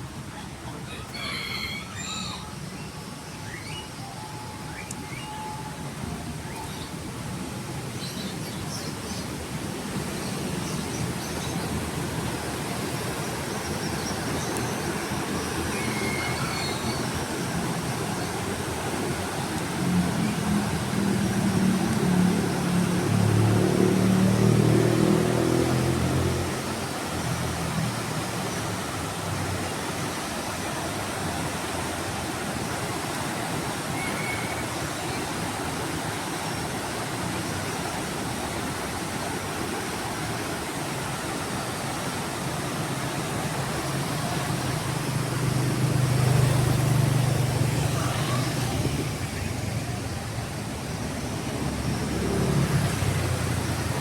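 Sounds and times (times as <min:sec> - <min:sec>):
traffic hiss: 0:00.0 - 0:54.0
vehicle engine hum: 0:09.5 - 0:33.7, 0:35.4 - 0:54.0
vehicle passing: 0:18.9 - 0:29.4, 0:43.5 - 0:54.0.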